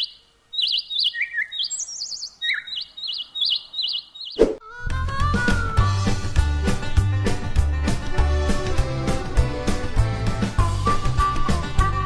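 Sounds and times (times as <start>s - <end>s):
birds chirping: 0.0s - 4.6s
upbeat music with bass: 4.9s - 12.0s.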